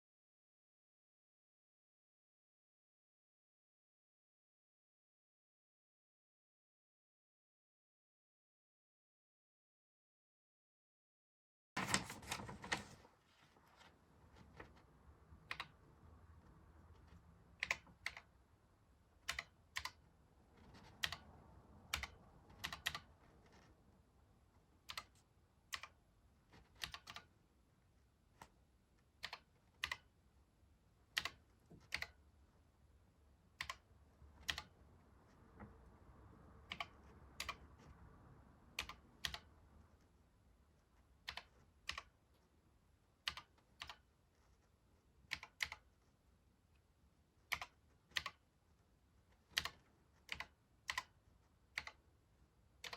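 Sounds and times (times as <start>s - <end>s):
computer keyboard key clicks: 21.9s - 23.1s, 26.7s - 27.3s, 31.2s - 32.2s, 34.4s - 34.7s, 38.8s - 39.5s, 43.3s - 44.0s, 45.3s - 45.9s, 47.5s - 48.4s, 49.5s - 51.1s, 51.8s - 52.0s.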